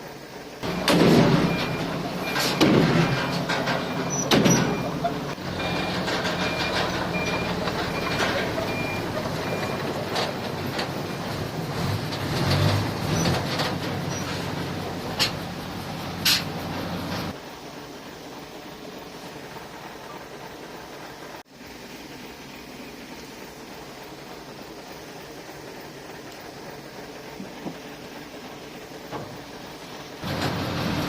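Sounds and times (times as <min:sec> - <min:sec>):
diesel heavy machinery running: 0:00.0 - 0:31.0
reversing alarm beeping: 0:00.6 - 0:10.0.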